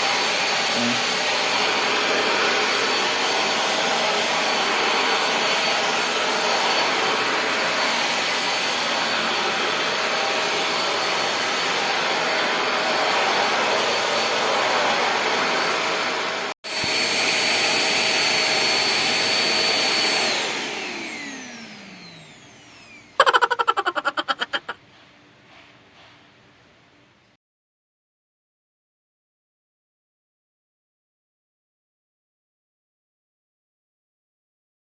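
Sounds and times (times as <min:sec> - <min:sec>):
handheld vacuum cleaner running: 0:00.0 - 0:24.6
motor spinning down: 0:19.0 - 0:24.7.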